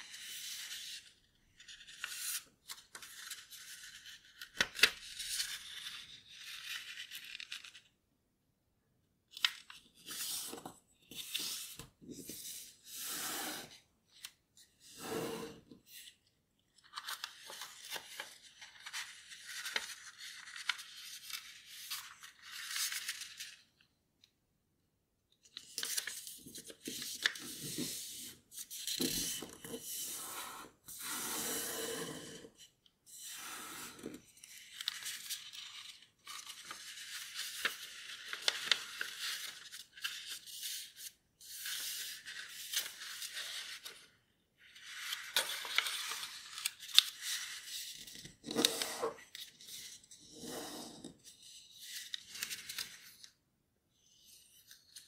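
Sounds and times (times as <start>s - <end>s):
paper rustling while folded: 16.8s - 23.6s, 25.6s - 31.1s, 34.3s - 44.0s, 44.7s - 50.0s, 51.1s - 53.3s.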